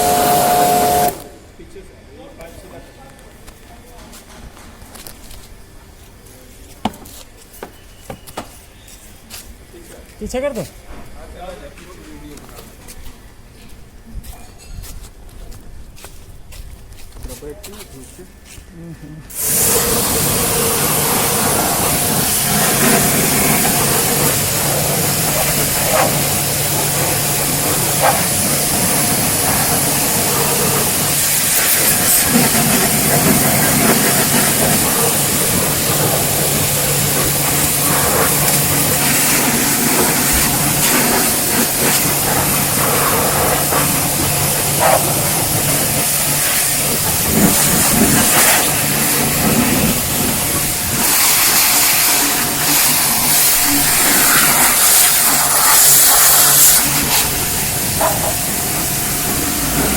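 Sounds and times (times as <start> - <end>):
pressure washer water jet hissing: 0.0 - 1.5, 19.3 - 59.9
steady low hum: 20.1 - 59.9.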